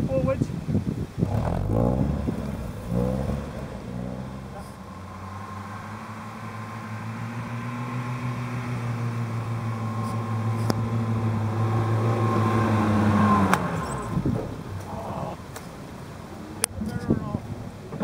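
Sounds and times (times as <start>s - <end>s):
engine running: 1.1s - 15.2s.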